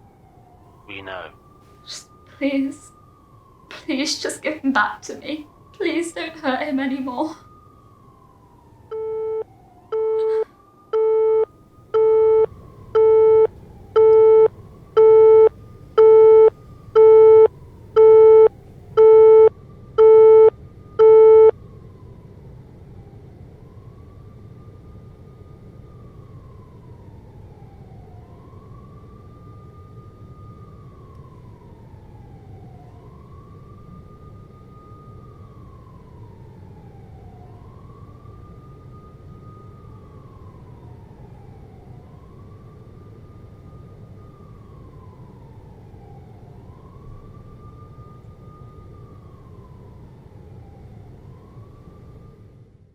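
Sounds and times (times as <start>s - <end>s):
distant siren wailing: 0.0s - 52.8s
electronic beep: 11.0s - 21.5s.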